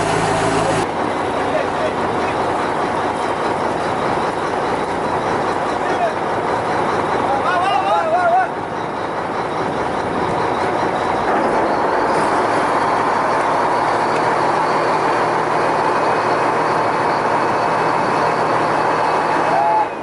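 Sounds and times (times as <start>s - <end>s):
loud rushing noise: 0.0s - 0.9s
boat engine humming: 0.0s - 20.0s.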